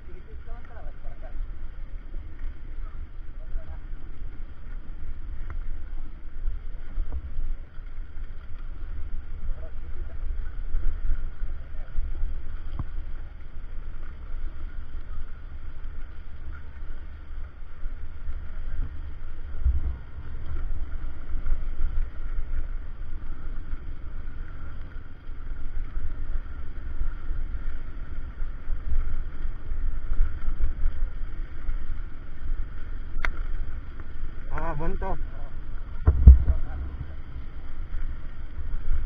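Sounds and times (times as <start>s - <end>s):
faint road noise: 0.0s - 39.0s
wind buffeting microphone: 34.4s - 39.0s.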